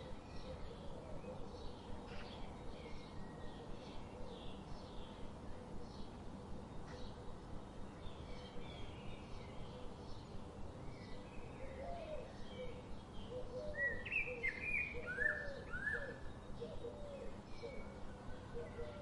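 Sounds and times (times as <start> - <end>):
low background hiss: 0.0 - 19.0
lower repeated bird call: 11.6 - 19.0.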